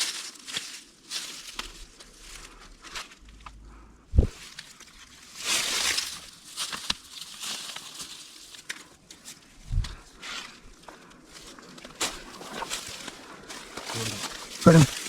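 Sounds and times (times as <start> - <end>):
twigs snapping: 0.0 - 3.6, 4.5 - 10.0, 11.0 - 15.0
footsteps in undergrowth: 0.0 - 15.0
sharp low thump: 4.1 - 4.4.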